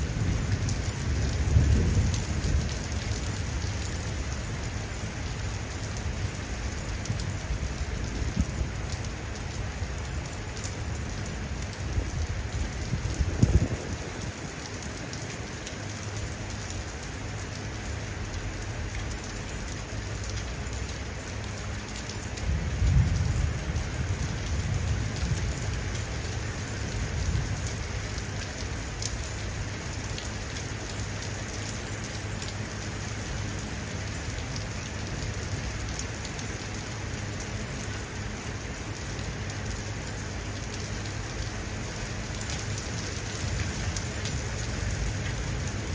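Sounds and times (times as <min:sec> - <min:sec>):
low rolling thunder: 0:00.0 - 0:03.9, 0:11.9 - 0:14.5, 0:22.4 - 0:27.9
rain on hard surfaces: 0:00.0 - 0:45.9.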